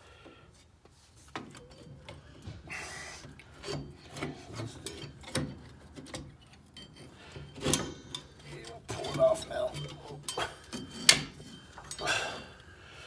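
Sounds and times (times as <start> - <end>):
metal parts scraping: 2.9 - 12.4.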